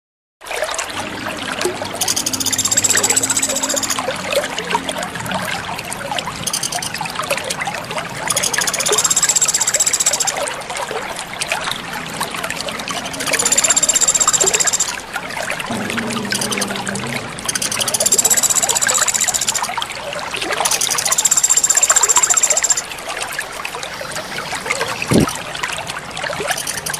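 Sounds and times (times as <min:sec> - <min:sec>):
water trickling: 0:00.5 - 0:26.9
high fast buzzing trill: 0:02.0 - 0:04.2, 0:08.3 - 0:10.4, 0:12.9 - 0:15.1, 0:15.7 - 0:19.8, 0:20.7 - 0:22.8.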